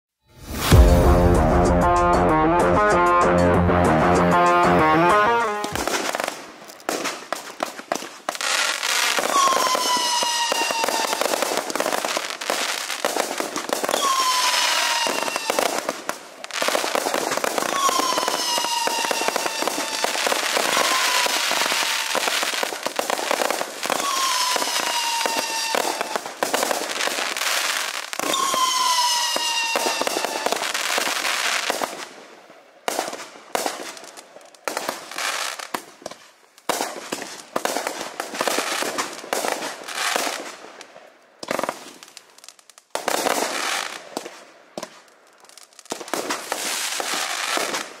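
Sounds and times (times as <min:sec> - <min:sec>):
firework shots and crackling bursts: 0:05.1 - 0:48.0
falling firework whistles: 0:07.9 - 0:15.9, 0:16.5 - 0:32.0.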